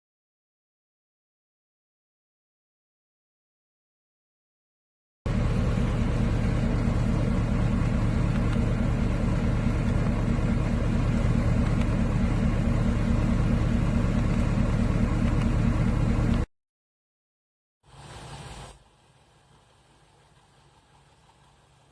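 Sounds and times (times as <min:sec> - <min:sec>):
vehicle engine idling: 0:05.3 - 0:16.5.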